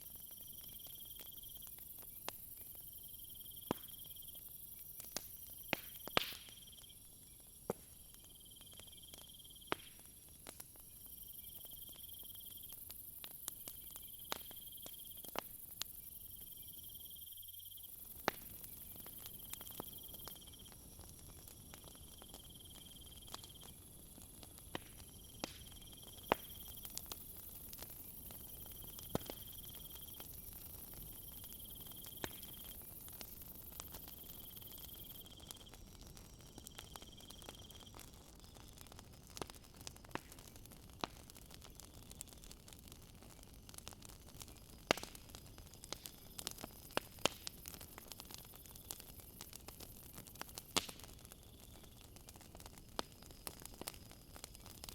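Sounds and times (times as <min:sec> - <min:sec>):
crickets chirping: 0:00.0 - 0:38.9, 0:51.0 - 0:52.1
wood fire crackling: 0:00.0 - 0:54.9.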